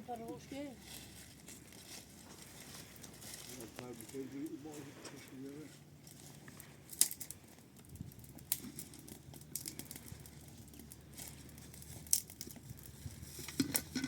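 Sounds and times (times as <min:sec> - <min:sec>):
light crinkly rustling: 0:00.0 - 0:14.0
sharp clicks and ticks: 0:06.9 - 0:14.0.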